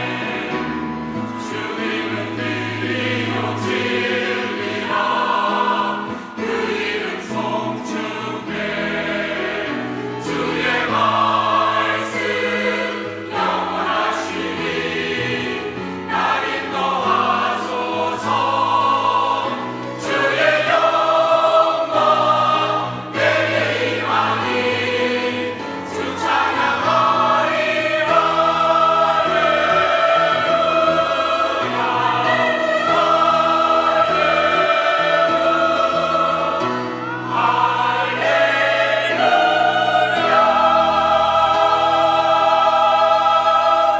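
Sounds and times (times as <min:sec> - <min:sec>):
church choir singing: 0:00.0 - 0:43.9.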